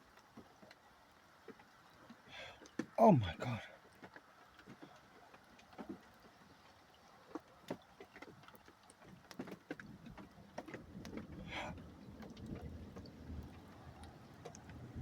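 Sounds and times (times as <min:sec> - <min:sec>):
light ticks: 0:03.9 - 0:15.0.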